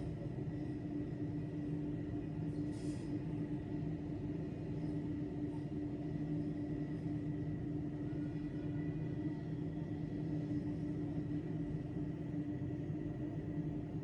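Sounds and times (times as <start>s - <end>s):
low mechanical rumble: 0.0s - 14.0s
faint high tone: 7.8s - 9.8s.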